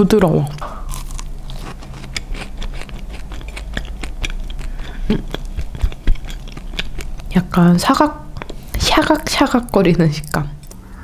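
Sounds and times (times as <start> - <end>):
crunchy cookie chewing: 0.1 - 7.7.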